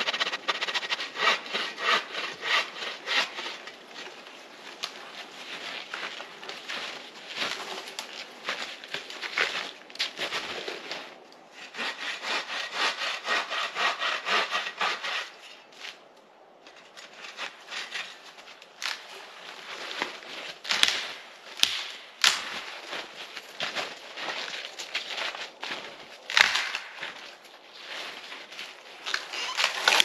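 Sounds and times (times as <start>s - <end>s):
hand saw cutting wood: 0.0s - 3.8s, 11.5s - 15.6s, 17.0s - 18.2s, 29.1s - 30.0s
sharp cracks or knocks: 20.7s - 22.6s, 26.3s - 27.0s.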